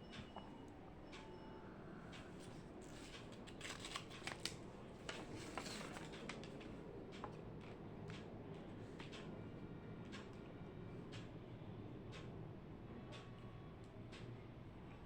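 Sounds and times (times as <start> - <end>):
small clicks and paper rustles: 2.4 - 8.3.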